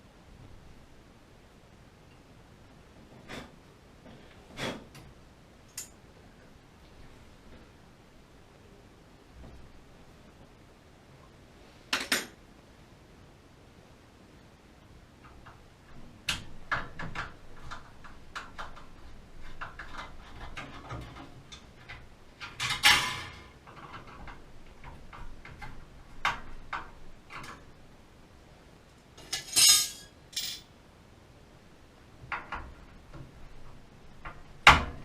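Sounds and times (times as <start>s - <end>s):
metal parts clicking and clinking: 22.4s - 24.4s, 29.2s - 30.7s.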